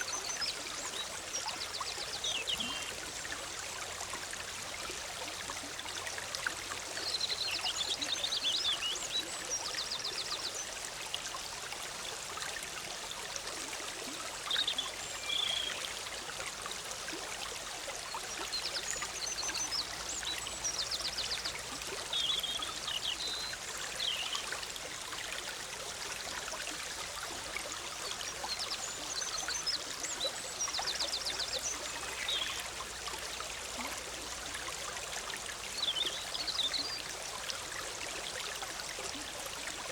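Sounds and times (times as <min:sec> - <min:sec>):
stream bubbling over rocks: 0:00.0 - 0:39.9
songbirds singing: 0:07.0 - 0:10.7, 0:14.5 - 0:15.8, 0:18.4 - 0:24.6, 0:28.2 - 0:32.8, 0:35.7 - 0:37.1.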